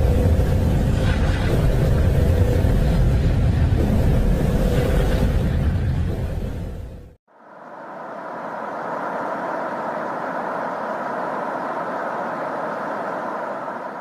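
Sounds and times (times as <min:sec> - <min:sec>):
steady rushing hiss: 0:07.3 - 0:14.0.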